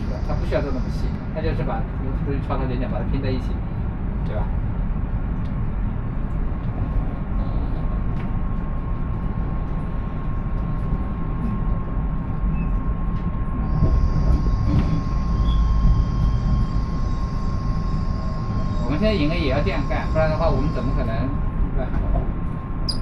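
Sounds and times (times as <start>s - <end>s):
faint steady whine: 0.0s - 23.0s
train wheels rumbling on track: 0.0s - 23.0s.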